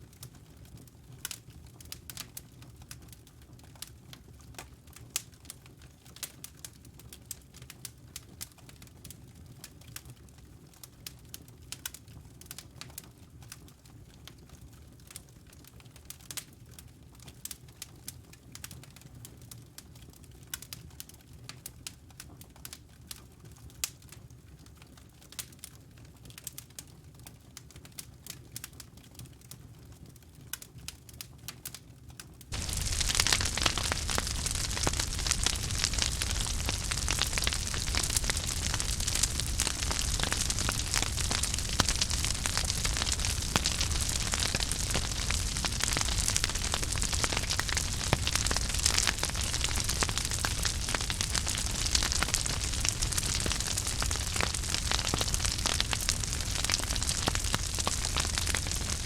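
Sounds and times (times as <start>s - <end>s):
campfire crackling: 32.5s - 59.0s
low rumble of burning wood: 32.5s - 59.0s.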